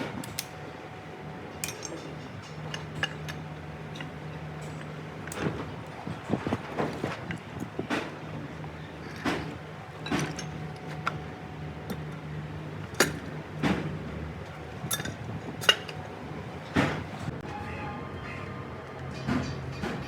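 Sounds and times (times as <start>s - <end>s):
metal tools clinking: 1.6s - 6.2s, 8.8s - 16.3s.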